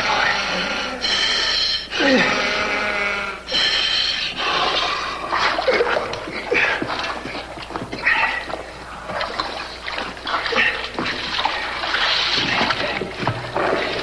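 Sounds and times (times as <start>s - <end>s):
man gasping and moaning: 0.0s - 3.6s
steady low hum: 0.0s - 14.0s.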